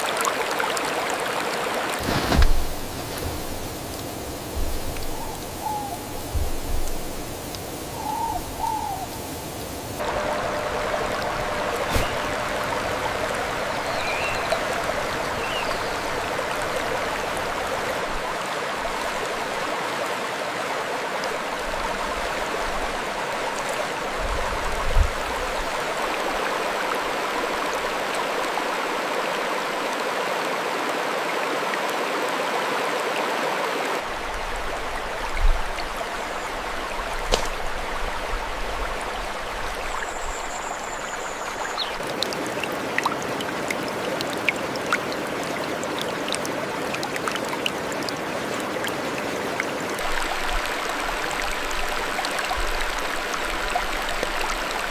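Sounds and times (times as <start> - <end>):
thinner water sound: 0.0 - 30.1, 33.8 - 54.9
mountain stream rushing: 0.0 - 54.9.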